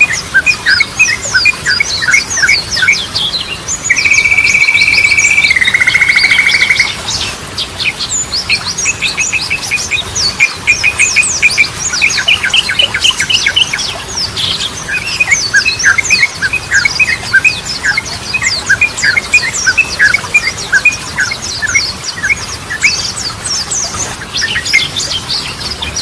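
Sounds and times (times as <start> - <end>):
bird chirps and whistled notes: 0.0 - 7.2, 14.5 - 26.0.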